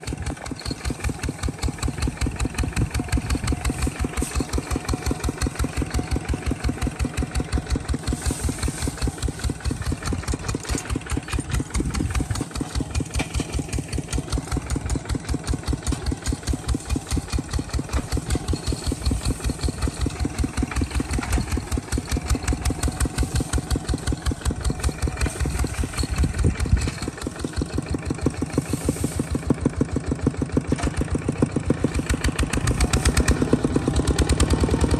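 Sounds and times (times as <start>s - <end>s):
engine chugging: 0.0s - 34.9s.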